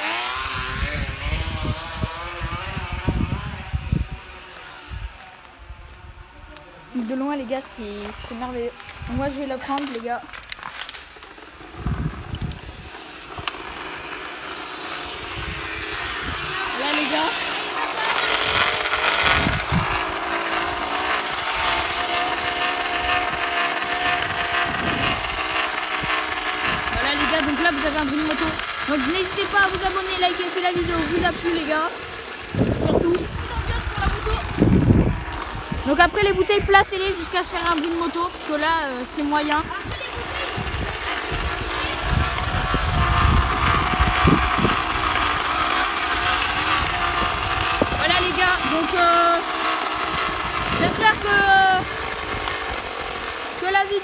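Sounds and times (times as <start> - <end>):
spokes rattling against plastic bottle: 6.9 - 54.0.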